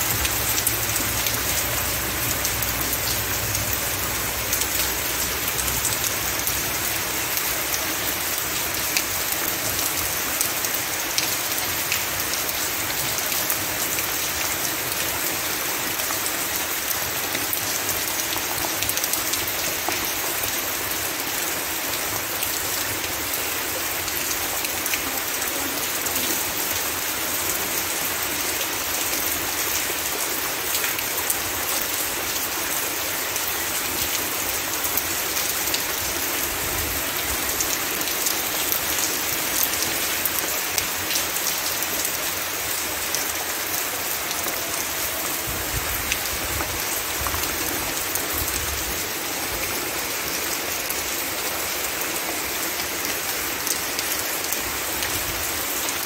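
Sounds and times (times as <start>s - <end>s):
heavy rain hissing: 0.0s - 56.0s.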